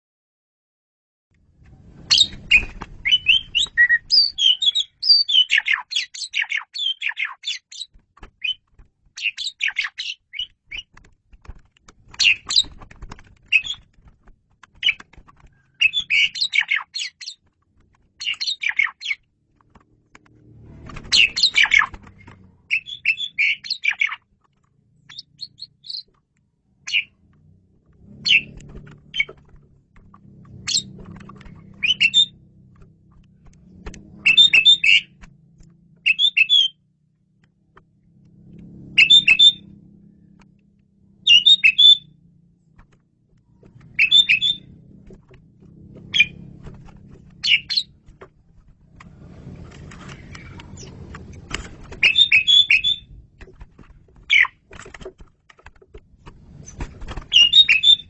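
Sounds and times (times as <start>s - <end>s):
bird whistling and chattering: 2.1s - 8.6s, 9.2s - 10.8s, 13.5s - 13.8s, 15.8s - 17.4s, 18.2s - 19.2s, 21.1s - 21.9s, 22.7s - 24.2s, 31.8s - 32.3s, 34.2s - 35.1s, 36.1s - 36.8s, 39.0s - 39.6s, 41.2s - 42.1s, 43.9s - 44.7s, 47.4s - 47.9s, 52.0s - 53.1s, 57.3s - 58.0s.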